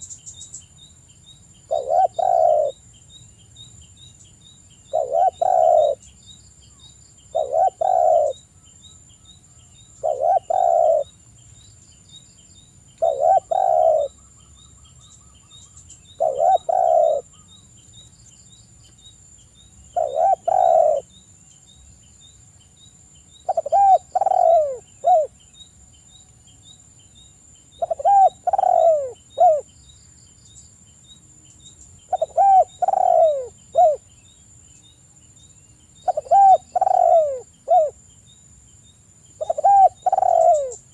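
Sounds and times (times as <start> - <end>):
dove cooing: 1.7 - 2.8, 4.9 - 6.1, 7.3 - 8.4, 10.0 - 11.1, 13.0 - 14.2, 16.1 - 17.5, 20.0 - 21.1, 23.5 - 25.3, 27.8 - 29.7, 32.1 - 34.1, 36.0 - 38.0, 39.4 - 40.9.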